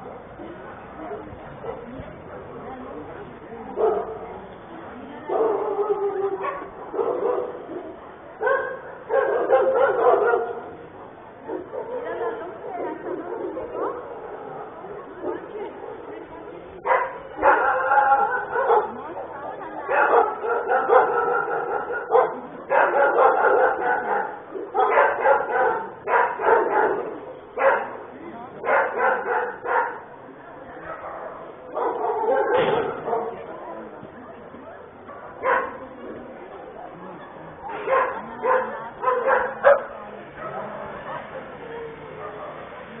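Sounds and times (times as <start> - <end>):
dog barking: 3.8 - 4.2, 5.3 - 10.8, 16.8 - 19.0, 19.9 - 28.0, 28.6 - 30.1, 30.8 - 33.5, 34.8 - 35.8, 37.7 - 41.3, 42.2 - 42.7.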